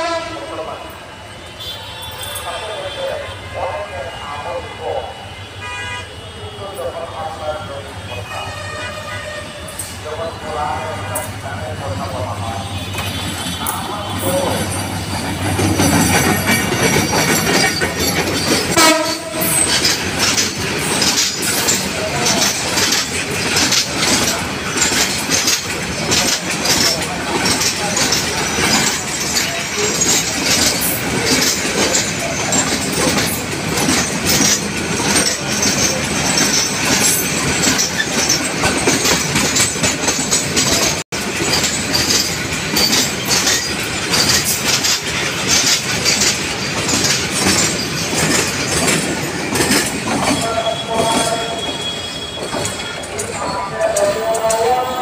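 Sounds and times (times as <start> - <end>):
wheels clattering over rail joints: 9.7 - 55.0
metallic wheel squeal: 12.7 - 22.5, 50.2 - 53.8.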